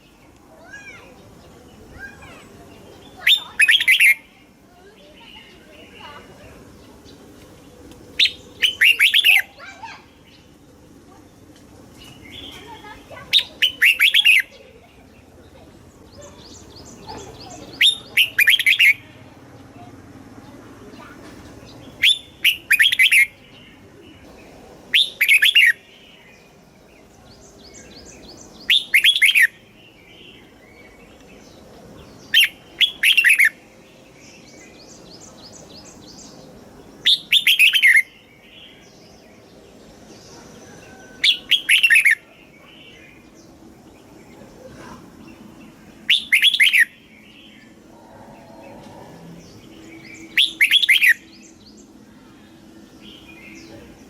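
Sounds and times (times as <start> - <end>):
faint bird chirps: 0.0 - 7.3, 8.1 - 11.4, 12.0 - 54.0.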